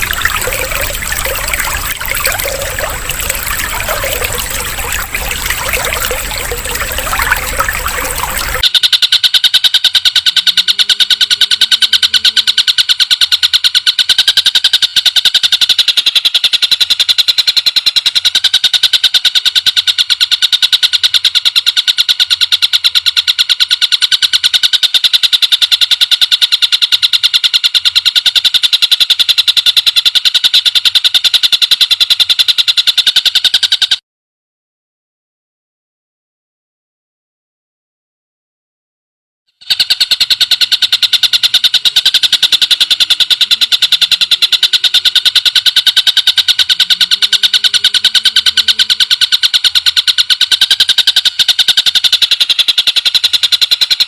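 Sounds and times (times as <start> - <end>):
trickling water: 0.0 - 8.6
fast high-pitched bird trill: 0.0 - 9.2, 39.6 - 54.0.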